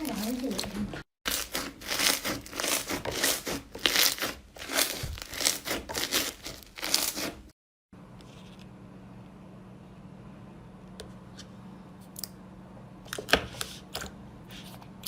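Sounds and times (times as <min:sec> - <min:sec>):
slime squelching: 0:00.0 - 0:07.5.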